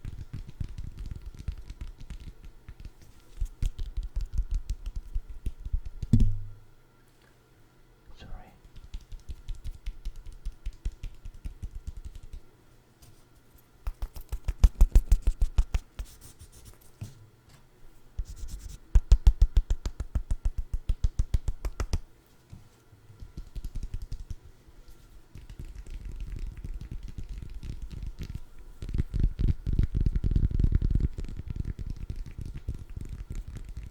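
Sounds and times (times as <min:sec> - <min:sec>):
rapid tapping on food: 0:00.0 - 0:06.5, 0:08.6 - 0:12.5, 0:19.0 - 0:22.0, 0:23.2 - 0:24.4, 0:25.4 - 0:33.9.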